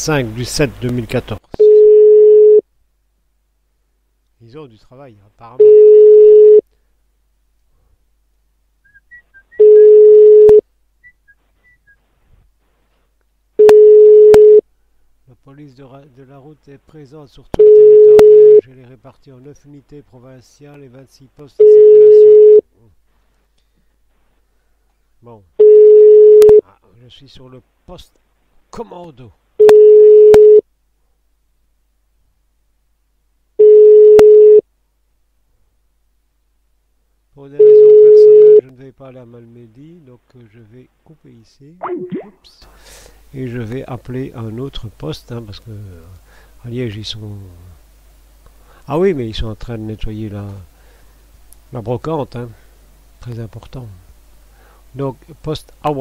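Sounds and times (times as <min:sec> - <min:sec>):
telephone ringback tone: 0:01.6 - 0:02.6, 0:05.6 - 0:06.6, 0:09.6 - 0:10.6, 0:13.6 - 0:14.6, 0:17.6 - 0:18.6, 0:21.6 - 0:22.6, 0:25.6 - 0:26.6, 0:29.6 - 0:30.6, 0:33.6 - 0:34.6, 0:37.6 - 0:38.6.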